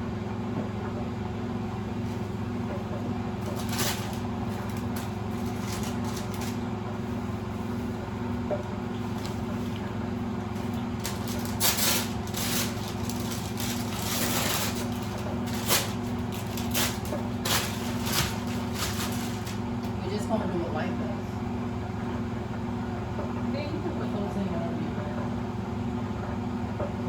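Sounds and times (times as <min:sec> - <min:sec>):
kitchen appliance humming: 0:00.0 - 0:27.0
kitchen clicks and clatters: 0:10.6 - 0:19.6.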